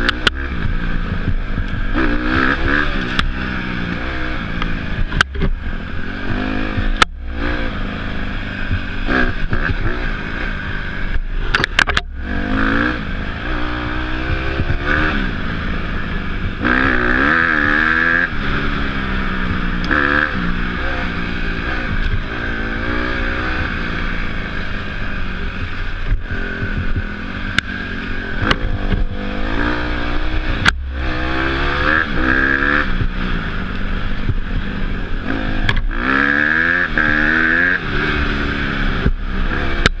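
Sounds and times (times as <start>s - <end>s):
motorcycle engine revving: 0.0s - 40.0s
sharp clicks: 11.1s - 12.2s.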